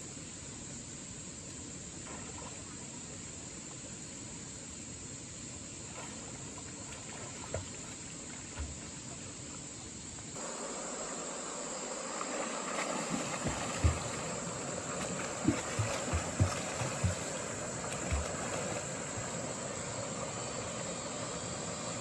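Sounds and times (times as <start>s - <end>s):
insects droning: 0.0s - 22.0s
stream water flowing: 0.0s - 22.0s.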